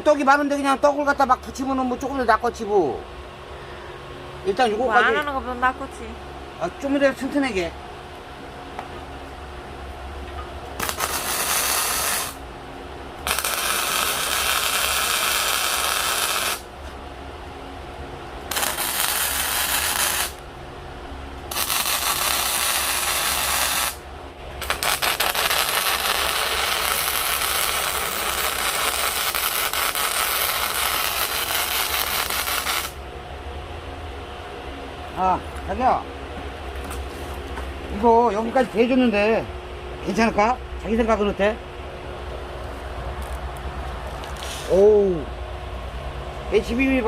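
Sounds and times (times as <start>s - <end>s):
low hum: 2.8s - 47.0s
arc welding crackling hiss: 10.8s - 12.5s, 13.2s - 16.7s, 18.5s - 20.4s, 21.5s - 24.0s, 24.6s - 33.0s.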